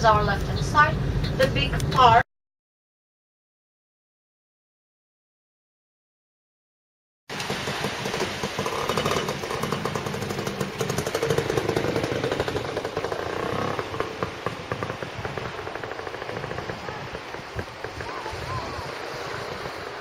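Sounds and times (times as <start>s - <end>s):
vehicle engine clattering: 0.0s - 2.2s, 7.3s - 19.8s.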